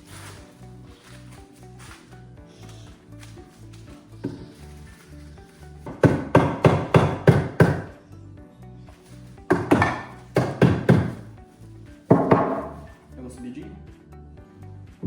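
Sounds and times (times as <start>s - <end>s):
hammer blows on wood: 5.8s - 8.0s, 9.5s - 11.4s.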